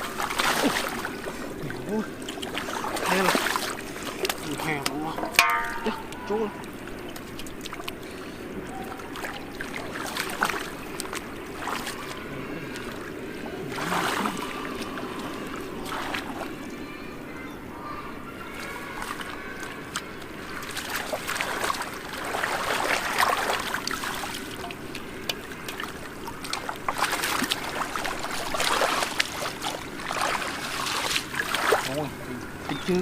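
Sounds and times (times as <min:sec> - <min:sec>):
muddy water splashing: 0:00.0 - 0:33.0.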